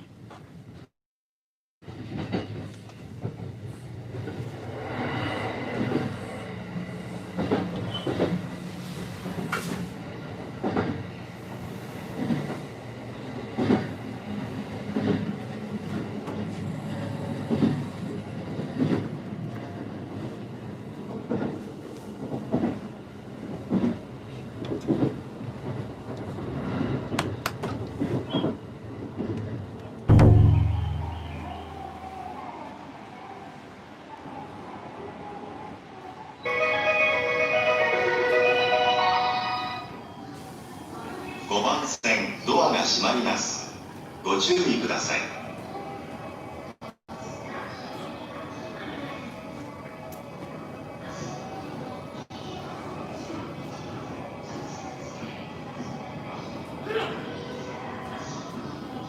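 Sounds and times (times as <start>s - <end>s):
train rumble: 1.8s - 33.0s
loud low hum: 30.1s - 32.4s.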